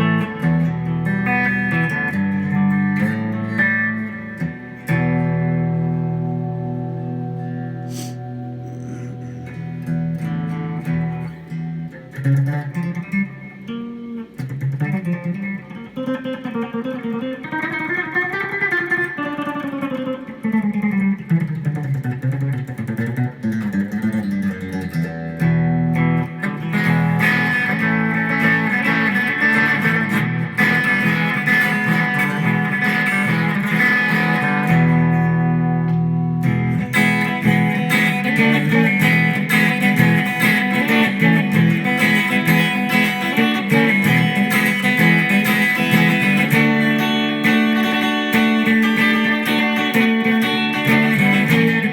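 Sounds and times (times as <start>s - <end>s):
electric guitar: 0.0s - 51.9s.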